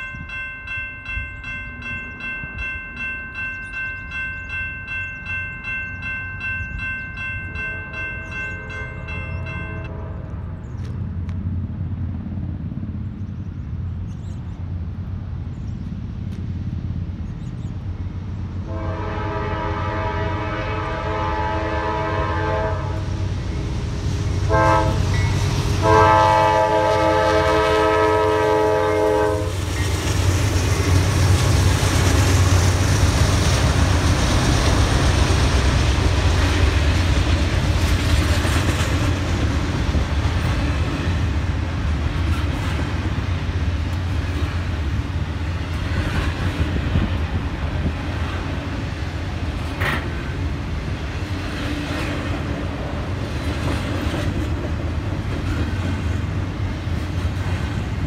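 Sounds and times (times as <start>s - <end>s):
train rumbling past: 0.0s - 58.0s
locomotive air horn blasts: 18.7s - 23.1s, 24.5s - 29.6s
wheels clattering on rail: 28.2s - 58.0s.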